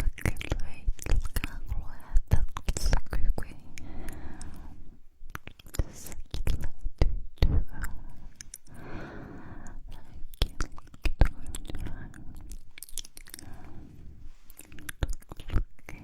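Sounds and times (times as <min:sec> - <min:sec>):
lip and mouth clicks: 0:00.0 - 0:04.6, 0:05.2 - 0:08.8, 0:09.6 - 0:16.0
breathing: 0:03.5 - 0:05.1, 0:07.9 - 0:09.9, 0:11.8 - 0:12.6, 0:13.2 - 0:14.9.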